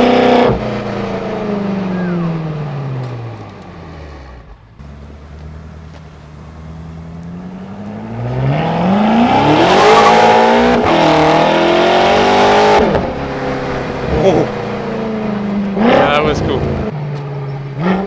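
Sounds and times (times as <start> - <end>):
car engine accelerating: 4.8 - 16.9.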